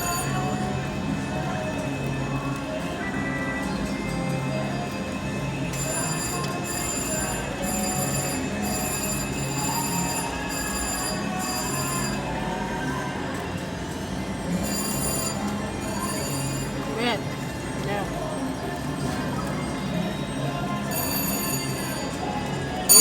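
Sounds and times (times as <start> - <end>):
pulsing high bell-like ringing: 0.0 - 0.8, 5.6 - 12.5, 14.5 - 17.2, 20.2 - 23.0
slot machine ringing and chimes: 0.0 - 1.0, 3.0 - 12.7, 14.4 - 18.6, 20.0 - 23.0
casino floor din: 14.6 - 17.2.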